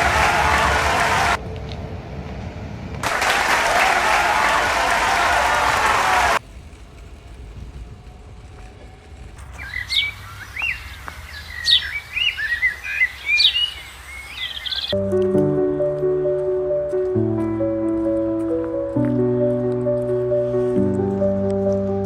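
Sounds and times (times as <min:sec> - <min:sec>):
low background rumble: 0:06.0 - 0:11.5
birds chirping: 0:09.4 - 0:15.0
music with held notes: 0:15.0 - 0:22.0.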